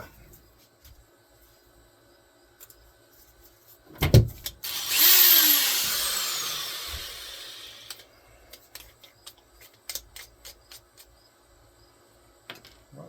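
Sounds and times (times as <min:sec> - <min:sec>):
electric drill whine: 0:04.6 - 0:08.1.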